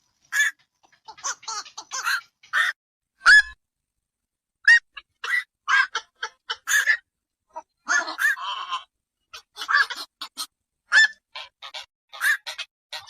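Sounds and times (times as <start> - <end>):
heron calling: 0.3 - 3.4, 4.7 - 13.0.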